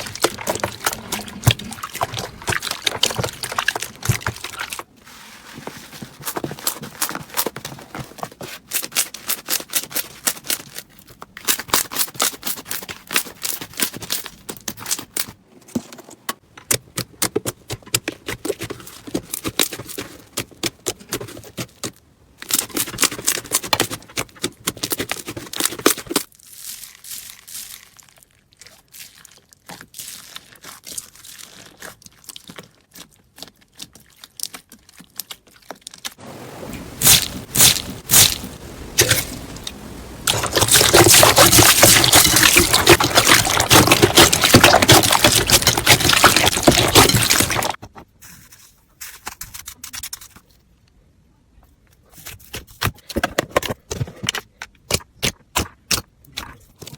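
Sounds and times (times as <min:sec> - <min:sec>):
slime crackling and popping: 0:40.2 - 0:47.8.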